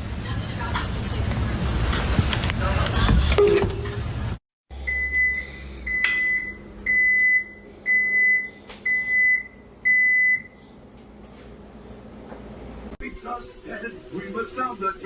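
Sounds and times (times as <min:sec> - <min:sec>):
appliance beeper beeping: 0:04.9 - 0:10.6.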